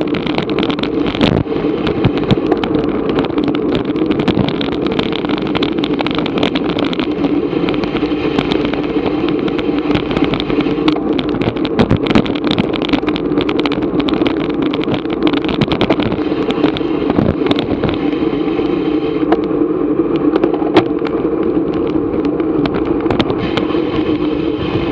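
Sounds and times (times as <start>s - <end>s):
bike clicks and rattles: 0.0s - 24.9s
road noise: 0.0s - 24.9s
wind rushing: 13.5s - 24.9s.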